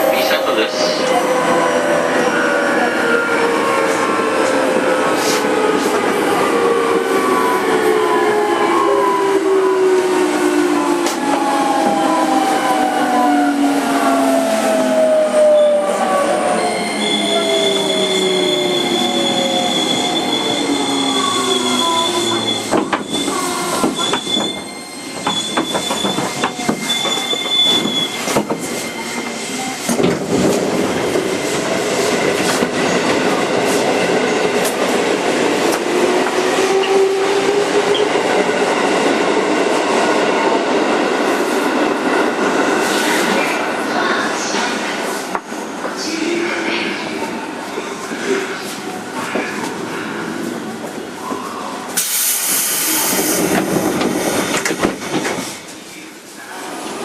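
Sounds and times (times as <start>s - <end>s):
train wheels rumbling on rails: 17.1s - 46.2s, 48.6s - 56.0s.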